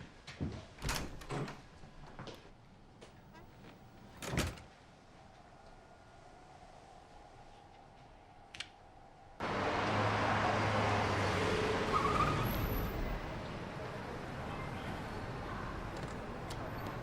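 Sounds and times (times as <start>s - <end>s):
car passing: 9.4s - 17.0s
road traffic noise: 9.4s - 17.0s.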